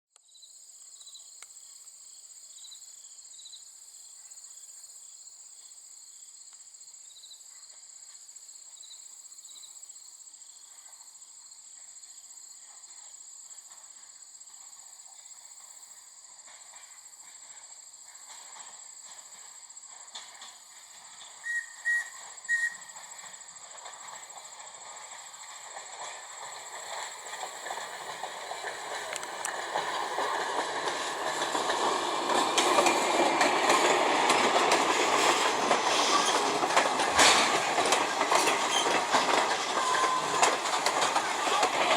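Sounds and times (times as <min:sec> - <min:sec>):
steam locomotive running: 0:10.7 - 0:41.9
steam whistle toots: 0:21.4 - 0:23.0.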